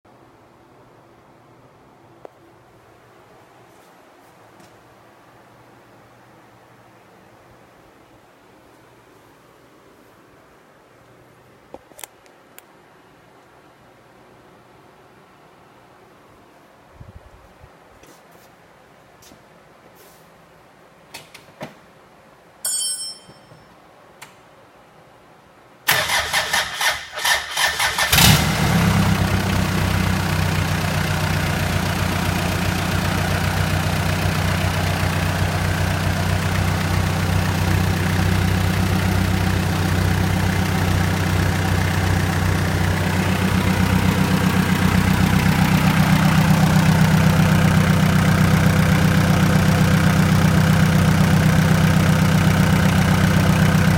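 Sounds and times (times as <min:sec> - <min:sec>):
short high tone: 0:22.6 - 0:23.7
diesel engine cranking: 0:25.9 - 0:30.0
diesel engine idling: 0:28.2 - 0:53.9.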